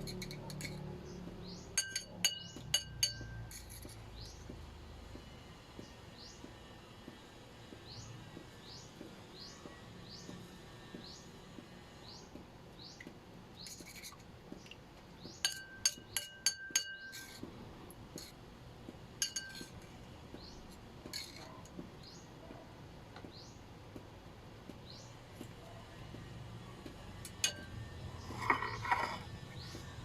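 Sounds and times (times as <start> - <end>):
kitchenware clinking: 1.8 - 4.0, 15.4 - 17.4, 19.2 - 19.8, 27.4 - 29.2.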